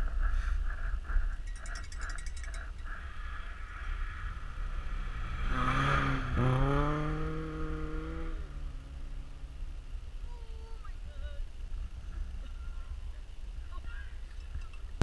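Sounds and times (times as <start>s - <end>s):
steady low rumble: 0.0s - 15.0s
car engine accelerating: 2.5s - 10.3s.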